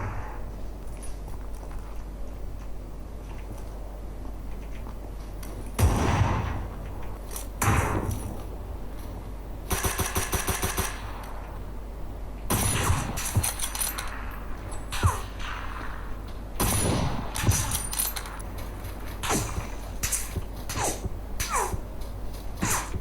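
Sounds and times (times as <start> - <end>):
single heavy gunshots: 5.8 - 6.8, 14.9 - 17.8
rapid automatic gunfire: 9.7 - 11.2.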